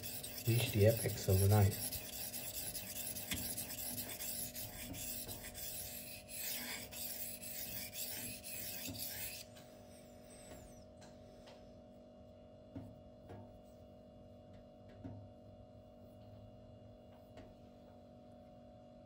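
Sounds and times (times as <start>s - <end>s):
knife scraping on whetstone: 0.0s - 9.5s.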